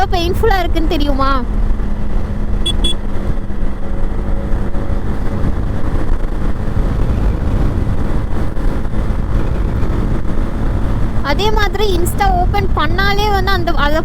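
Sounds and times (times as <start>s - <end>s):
motorcycle engine and road noise: 0.0s - 14.0s
wind rumble on microphone: 0.0s - 14.0s
high-pitched beeps: 2.6s - 3.0s.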